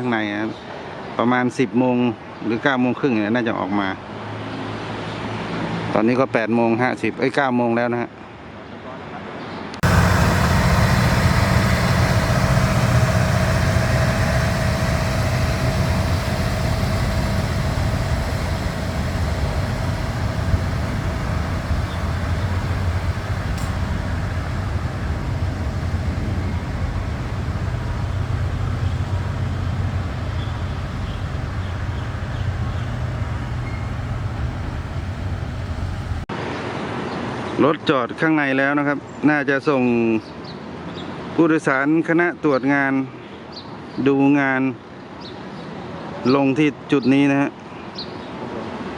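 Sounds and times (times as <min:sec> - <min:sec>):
diesel railcar engine drone: 0:09.8 - 0:36.3.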